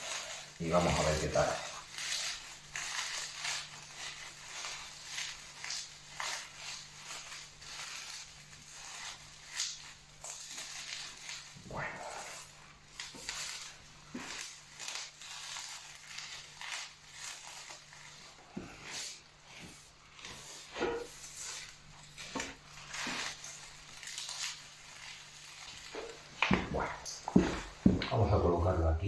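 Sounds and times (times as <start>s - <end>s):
dry twigs and leaves crackling: 0.0s - 28.3s.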